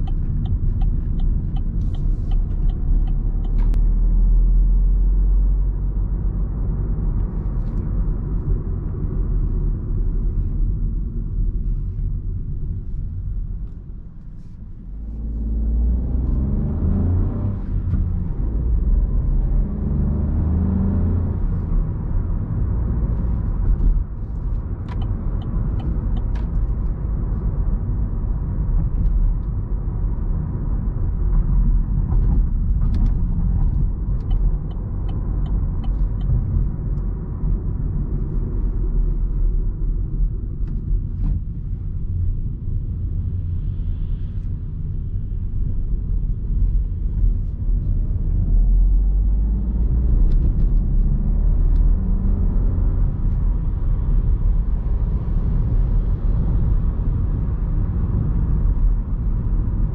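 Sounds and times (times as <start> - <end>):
car engine accelerating: 0.0 - 7.7, 14.4 - 28.2, 45.5 - 59.9
road noise inside car: 0.0 - 59.9.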